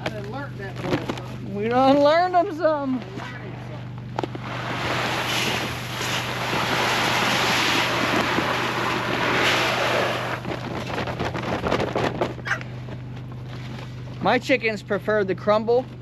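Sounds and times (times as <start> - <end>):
low hum: 0.0 - 15.0
loud rushing noise: 4.4 - 10.6.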